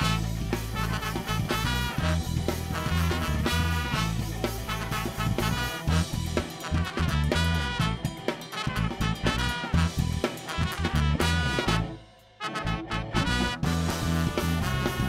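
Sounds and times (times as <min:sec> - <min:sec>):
ska band with horns and drums: 0:00.0 - 0:15.0.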